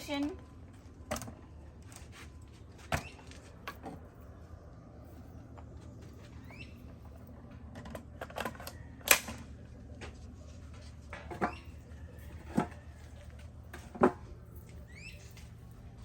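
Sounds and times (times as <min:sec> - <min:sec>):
bird chirping: 0:04.3 - 0:07.2, 0:14.8 - 0:15.5.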